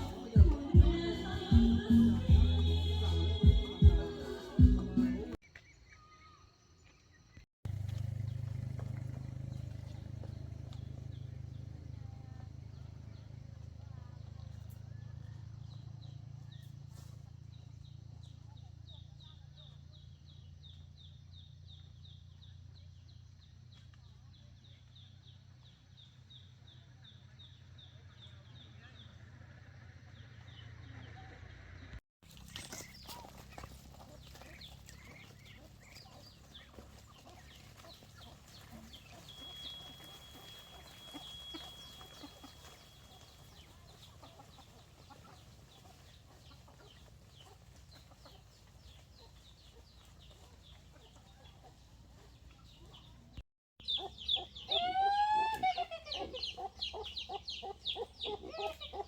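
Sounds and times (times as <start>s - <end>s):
chickens clucking and squawking: 0.0s - 5.4s, 32.4s - 59.0s
faint outdoor background: 0.0s - 59.0s.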